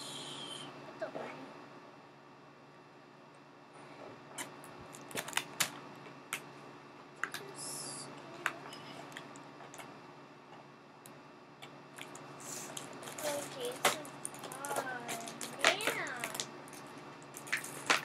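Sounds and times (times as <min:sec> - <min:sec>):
packaging rustle: 0:12.0 - 0:18.0.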